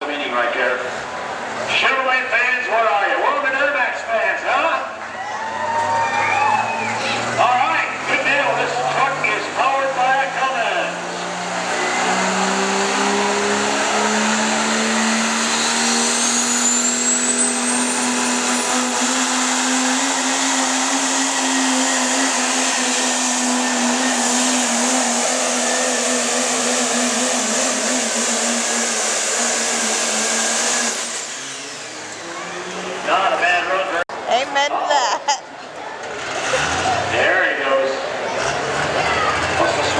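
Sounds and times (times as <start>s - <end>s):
diesel truck engine at full throttle: 0.0s - 34.3s, 35.6s - 39.9s
turbo whistle rising: 5.2s - 7.2s, 11.6s - 32.8s.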